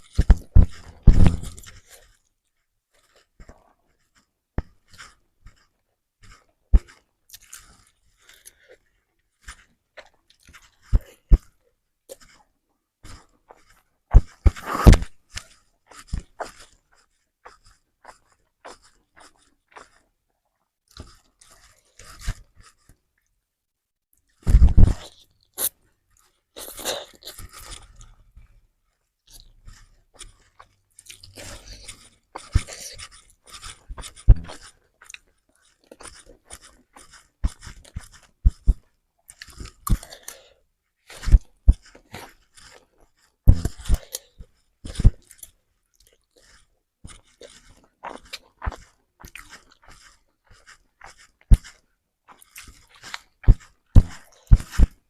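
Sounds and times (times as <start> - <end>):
chewing noodles: 0.0 - 23.4, 24.2 - 55.0.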